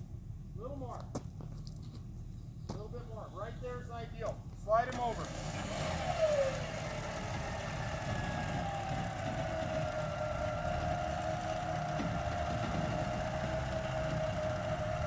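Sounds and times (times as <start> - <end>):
truck engine running: 4.8 - 15.0.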